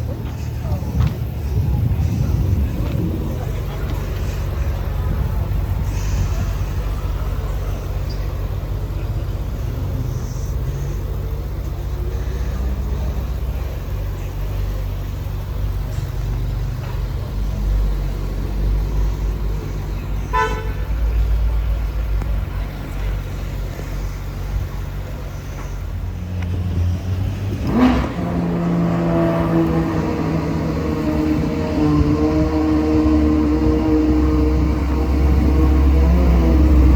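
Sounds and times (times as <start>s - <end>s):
higher engine note: 0.0s - 36.9s
street traffic engines: 0.0s - 36.9s
car horn toot: 20.2s - 21.1s.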